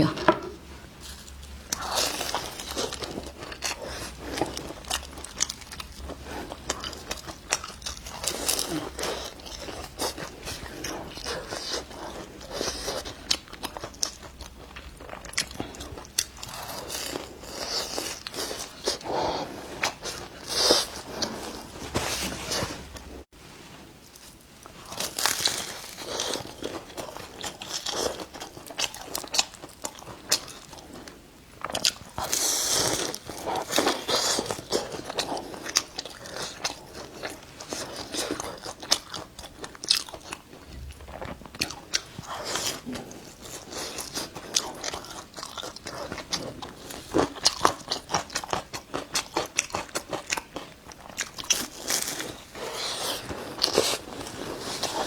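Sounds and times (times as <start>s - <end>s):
chewing: 24.6s - 55.0s.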